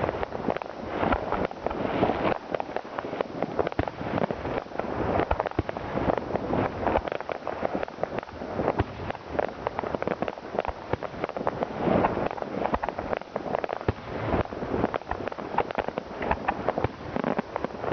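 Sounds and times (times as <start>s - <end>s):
fireworks and firecrackers banging: 0.0s - 17.9s.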